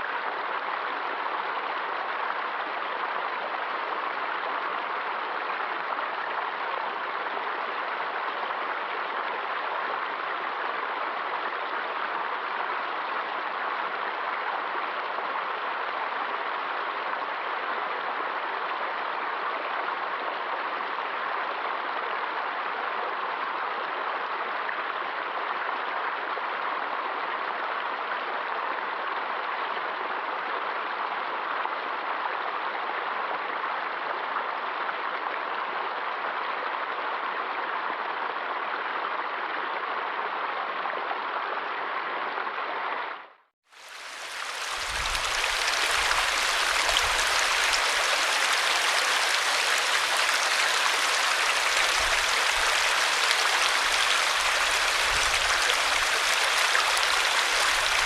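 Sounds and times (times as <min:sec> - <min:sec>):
water rushing: 0:43.7 - 0:58.0.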